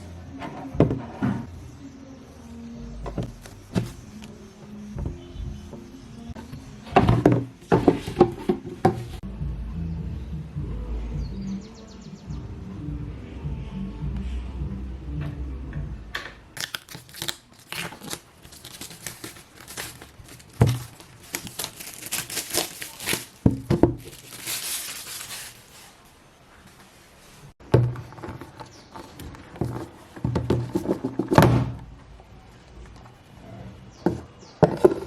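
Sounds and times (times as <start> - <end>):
packaging crinkling and tearing: 16.6 - 26.0.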